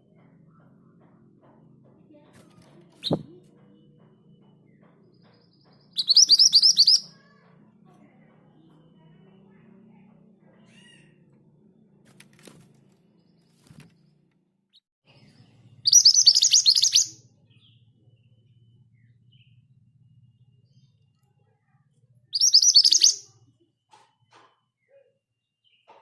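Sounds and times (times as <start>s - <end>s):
bird singing rolling trills: 3.0s - 7.3s, 15.1s - 21.1s, 22.2s - 23.8s.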